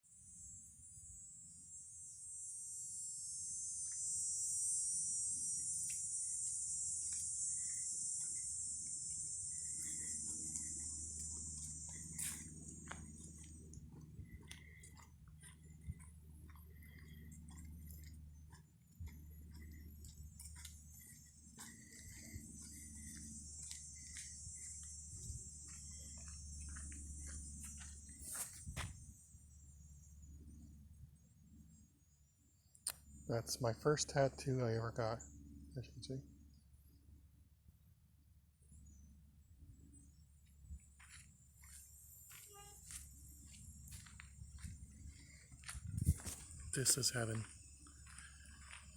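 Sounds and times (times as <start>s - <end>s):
high-pitched insect chorus: 0.1s - 37.4s, 38.5s - 48.9s.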